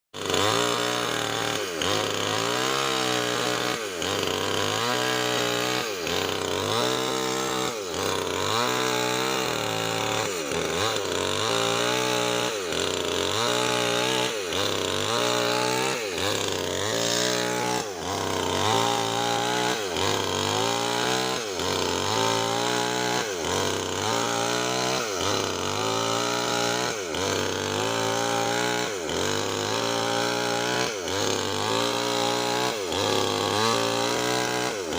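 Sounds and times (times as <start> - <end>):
chainsaw cutting wood: 0.1 - 34.9.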